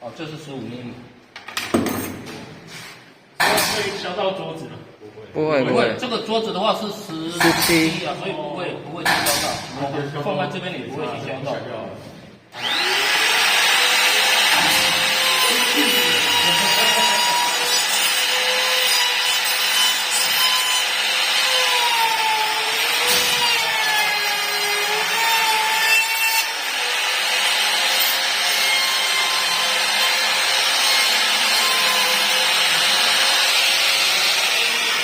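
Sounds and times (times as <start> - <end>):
electric router whining: 12.5 - 18.3.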